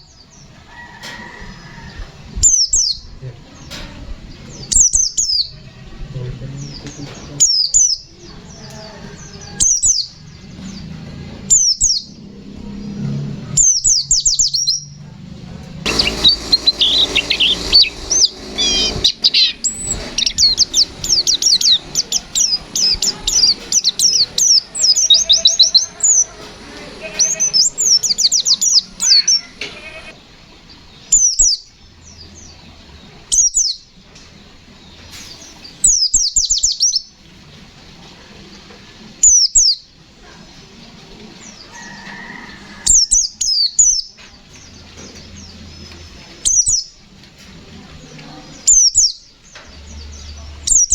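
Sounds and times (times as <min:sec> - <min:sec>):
bird singing: 0:15.9 - 0:30.1.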